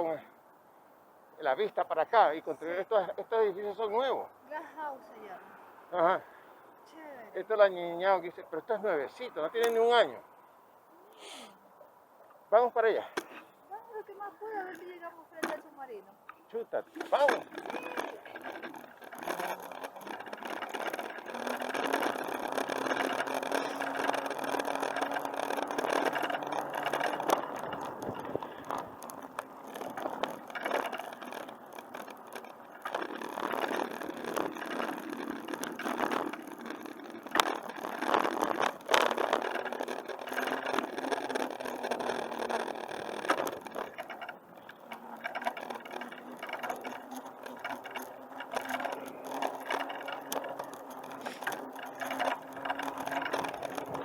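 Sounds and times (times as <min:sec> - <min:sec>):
bicycle rolling at speed: 0:00.9 - 0:11.0, 0:12.0 - 0:54.0
bicycle rattles and knocks: 0:12.8 - 0:16.0, 0:16.7 - 0:54.0.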